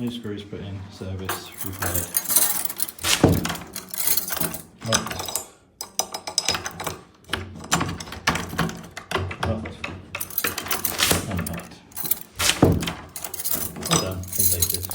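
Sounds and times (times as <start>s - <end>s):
keys jangling: 1.3s - 7.0s, 10.2s - 14.9s
lock mechanism clicking: 1.6s - 5.4s, 10.2s - 14.9s.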